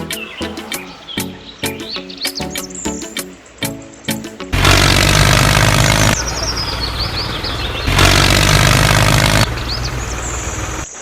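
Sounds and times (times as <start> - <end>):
small engine running: 4.5 - 11.0.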